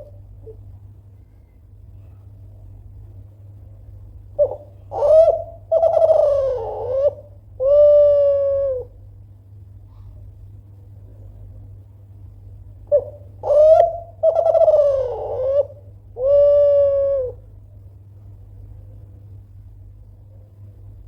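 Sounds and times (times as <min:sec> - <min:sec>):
low steady hum: 0:00.0 - 0:21.0
dove cooing: 0:04.4 - 0:09.0, 0:12.9 - 0:17.5.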